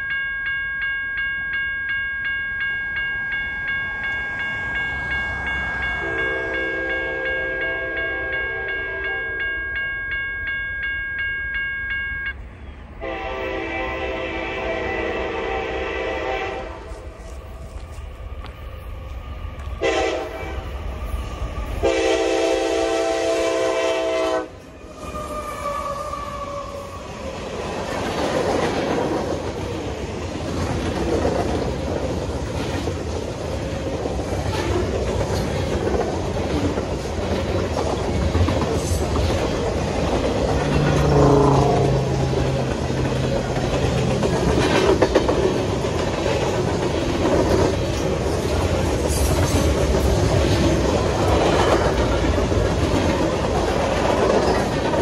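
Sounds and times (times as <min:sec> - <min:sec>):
train air horn blasts: 0:06.0 - 0:09.3, 0:13.0 - 0:17.0, 0:19.8 - 0:20.7, 0:21.8 - 0:26.9, 0:41.0 - 0:42.1
freight cars rumbling on steel wheels: 0:25.7 - 0:55.0.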